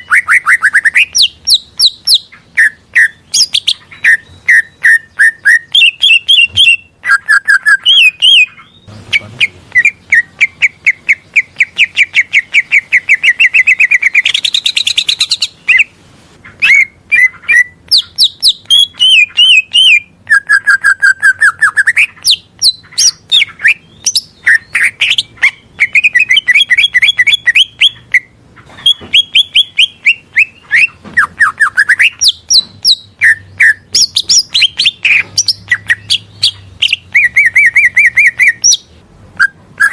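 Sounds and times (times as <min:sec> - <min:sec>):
bird singing fast chirps and trills: 0:00.0 - 0:39.9.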